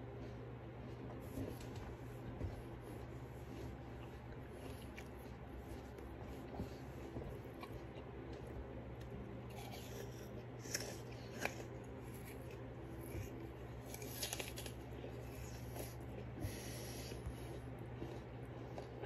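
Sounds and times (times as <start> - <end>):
wet chewing of apple: 0.0 - 19.0
apple crunches: 7.4 - 16.4.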